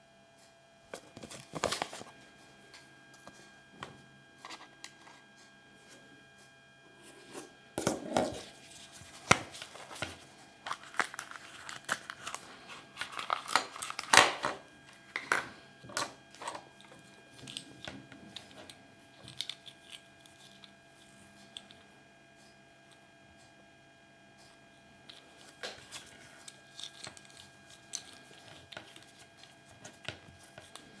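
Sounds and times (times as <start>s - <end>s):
packaging crinkling and tearing: 1.0s - 2.1s, 8.3s - 20.8s, 25.2s - 31.0s.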